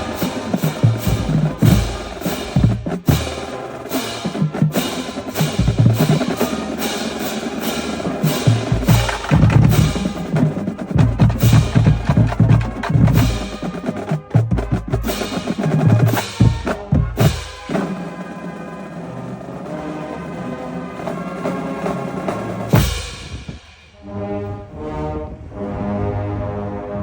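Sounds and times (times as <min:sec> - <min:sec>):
pounding bass drums: 0:00.0 - 0:03.6, 0:04.4 - 0:06.6, 0:07.6 - 0:17.8, 0:22.7 - 0:23.8
snare drum strokes: 0:00.0 - 0:19.8, 0:21.0 - 0:24.0.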